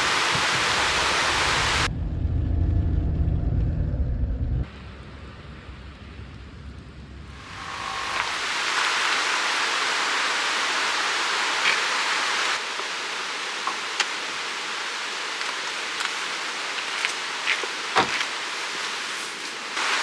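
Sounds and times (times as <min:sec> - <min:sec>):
river rushing: 0:00.0 - 0:01.9, 0:07.4 - 0:20.0.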